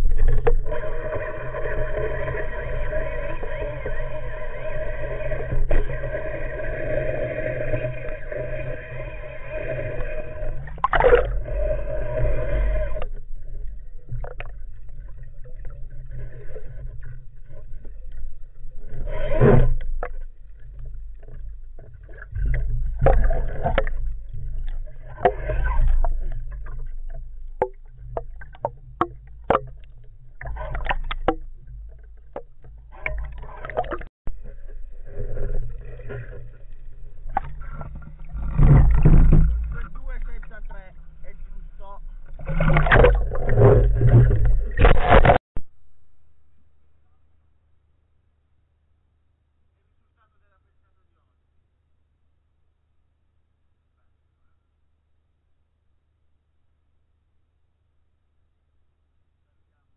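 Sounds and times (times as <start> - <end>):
water noise: 0.0 - 46.1.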